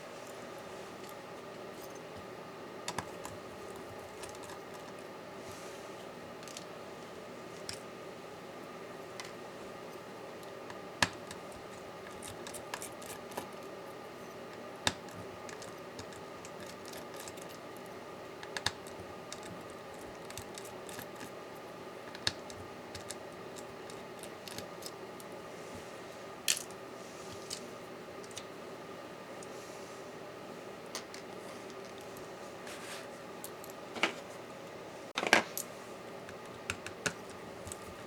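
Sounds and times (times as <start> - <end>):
steady background hum: 0.0 - 38.0
small tools clicking and tapping: 2.9 - 5.0, 10.4 - 13.7, 14.5 - 21.4, 22.0 - 25.3.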